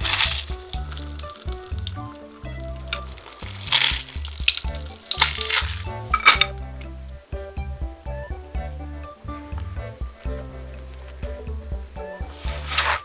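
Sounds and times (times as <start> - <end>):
kitchen sizzling hiss: 0.0 - 6.5
background music: 0.0 - 13.0.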